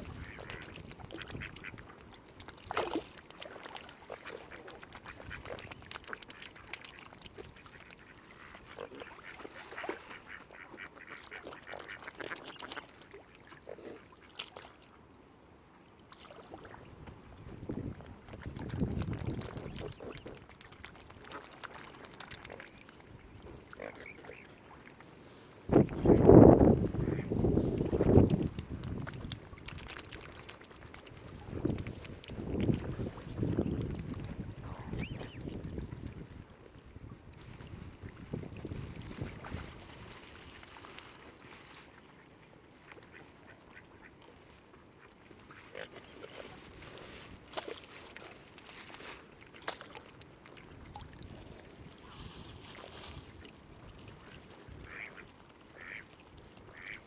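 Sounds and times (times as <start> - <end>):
low rumble of wind: 0.0 - 2.0, 16.8 - 20.3, 25.3 - 30.1, 31.2 - 40.5
waterbirds calling: 0.0 - 14.7, 18.4 - 25.1, 25.7 - 37.2, 45.0 - 46.7, 54.1 - 57.0
water rumbling: 25.6 - 40.8
ducks quacking: 26.9 - 27.3, 34.6 - 35.5, 54.8 - 55.2, 55.8 - 56.0, 56.7 - 57.0.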